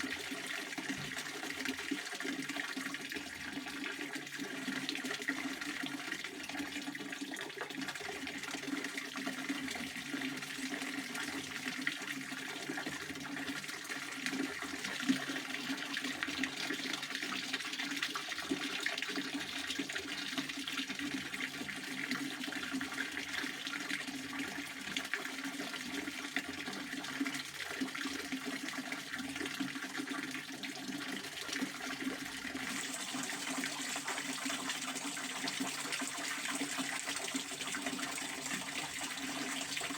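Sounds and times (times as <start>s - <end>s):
fountain water splashing: 32.6s - 39.9s.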